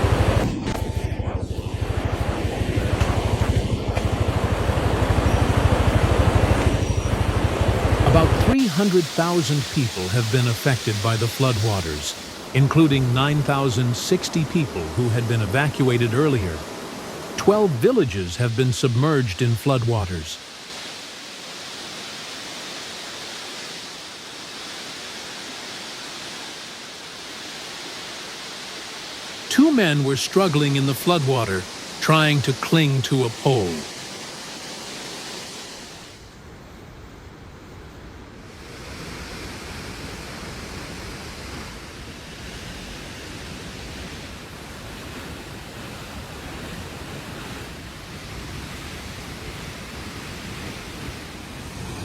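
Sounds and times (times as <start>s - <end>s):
floodwater rushing: 0.0s - 36.2s.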